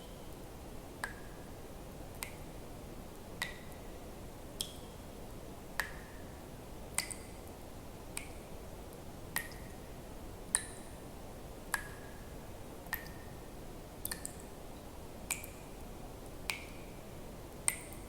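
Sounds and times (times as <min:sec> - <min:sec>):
faint steady hiss: 0:00.0 - 0:18.0
water drops plipping: 0:17.6 - 0:18.0.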